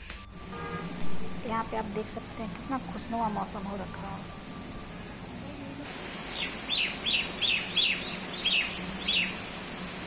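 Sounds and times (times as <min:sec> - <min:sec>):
rain hissing: 0:00.9 - 0:10.0
bird chirping: 0:02.3 - 0:09.5.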